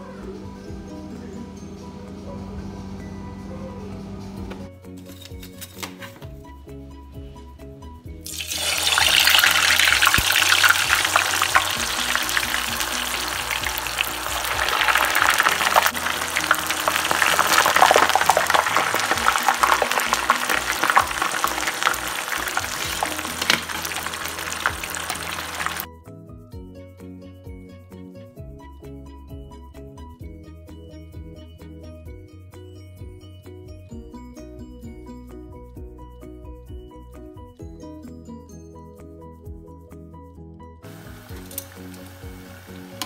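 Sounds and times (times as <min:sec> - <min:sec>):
background music: 0:00.0 - 0:43.0
fries sizzling in hot oil: 0:08.2 - 0:25.9, 0:40.9 - 0:43.0.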